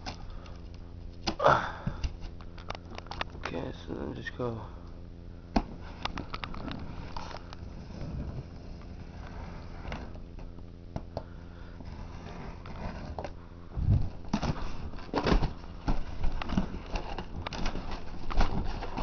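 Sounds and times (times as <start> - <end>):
steady low hum: 0.0 - 19.0
packing rustling and crinkling: 5.7 - 10.4, 13.9 - 19.0.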